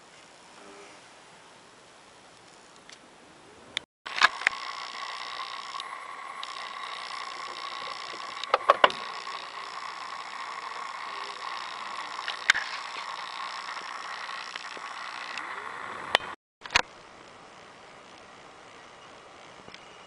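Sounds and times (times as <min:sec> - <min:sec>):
sharp clicks: 0:03.8 - 0:16.9
high electric whine: 0:04.1 - 0:20.0.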